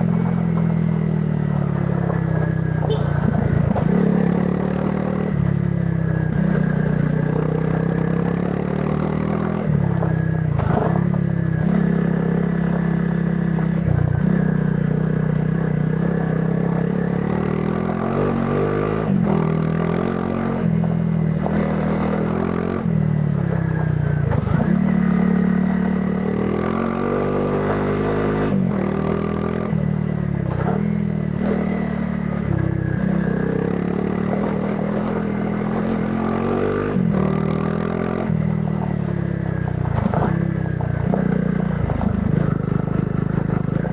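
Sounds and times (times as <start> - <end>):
motorcycle engine revving: 0.0 - 43.9
knocks and clatter from rough ride: 1.8 - 4.6, 9.7 - 11.8, 23.4 - 25.1, 30.4 - 31.6, 39.6 - 43.9.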